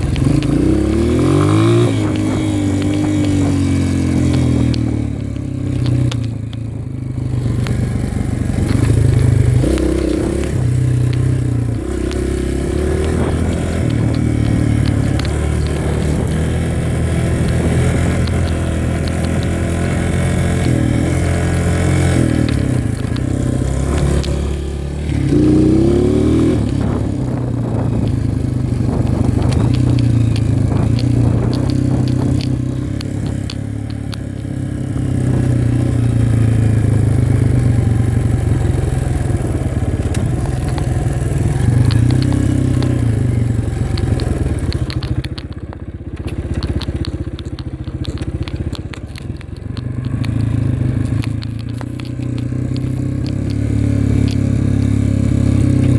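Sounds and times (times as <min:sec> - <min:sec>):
dirt bike engine revving: 0:00.0 - 0:06.0, 0:07.1 - 0:45.2
short clicks and crackles: 0:00.0 - 0:06.7, 0:08.6 - 0:34.6, 0:35.2 - 0:55.9.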